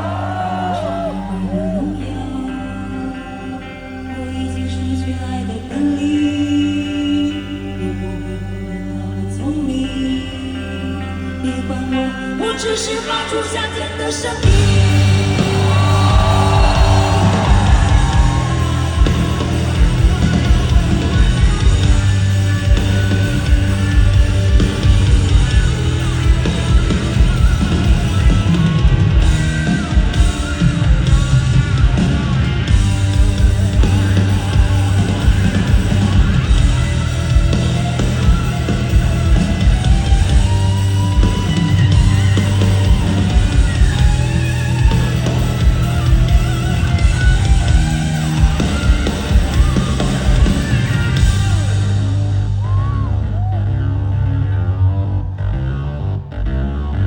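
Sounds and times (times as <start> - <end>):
bass guitar: 0.0 - 57.0
electric guitar: 0.0 - 57.0
live rock band playing: 12.2 - 55.0.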